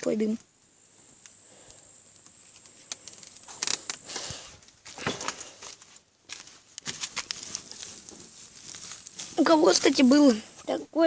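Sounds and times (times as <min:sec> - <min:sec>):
campfire crackling: 0:00.0 - 0:11.0
loud rustles: 0:02.5 - 0:10.7.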